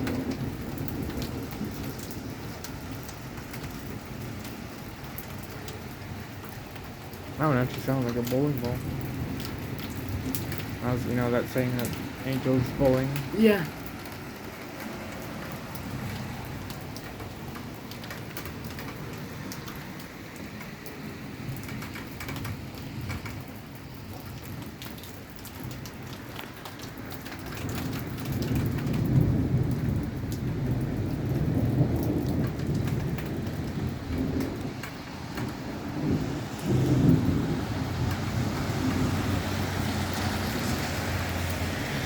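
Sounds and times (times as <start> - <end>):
rolling thunder rumble: 0.0 - 26.3, 26.9 - 41.6
steady rain falling: 0.0 - 42.0.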